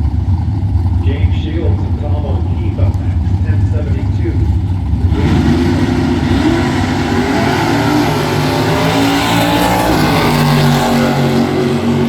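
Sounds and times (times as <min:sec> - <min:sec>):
drag racing car at full throttle: 0:00.0 - 0:12.0.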